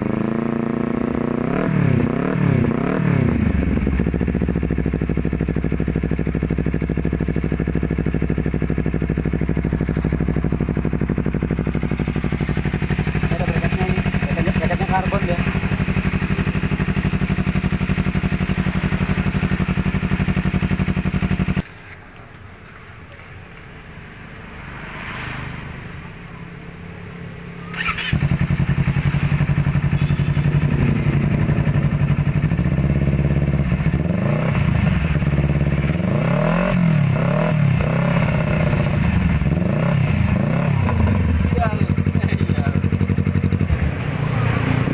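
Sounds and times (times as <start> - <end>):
motorcycle engine revving: 0.0 - 21.7, 24.5 - 26.1, 27.7 - 44.9.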